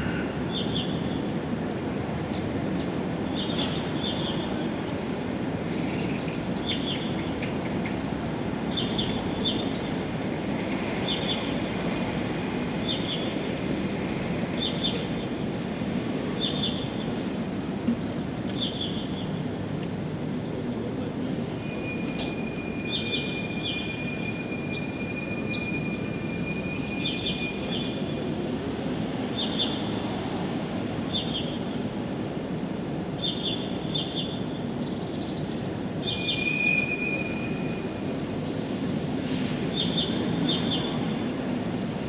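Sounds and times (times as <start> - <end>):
songbird call: 35.3 - 37.8.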